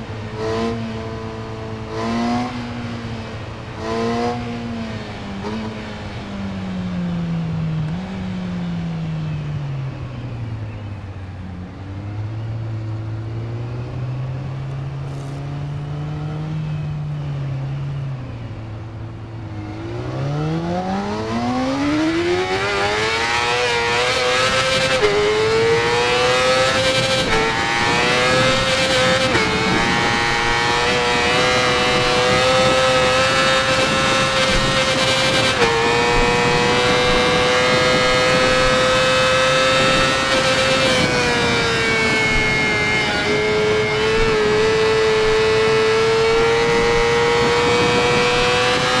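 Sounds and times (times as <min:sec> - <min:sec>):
motorcycle engine revving: 0:19.4 - 0:49.0.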